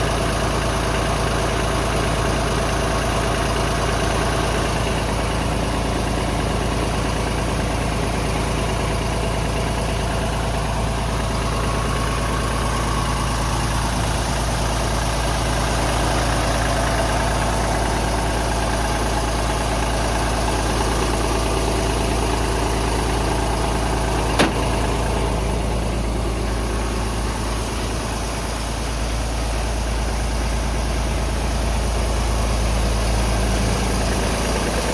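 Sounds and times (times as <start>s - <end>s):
diesel engine idling: 0.0s - 34.9s
sharp click: 24.4s - 24.9s.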